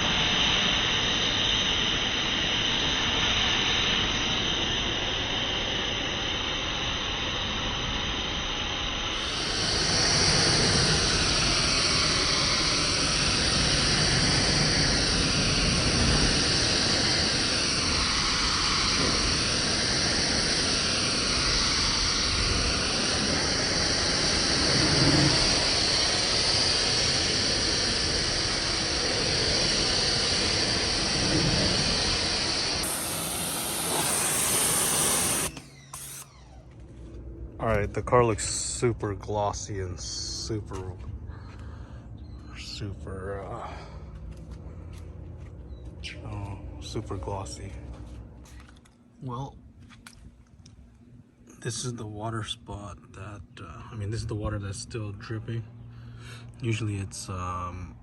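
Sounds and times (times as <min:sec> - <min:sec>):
water spray hissing on car: 0:09.2 - 0:36.2.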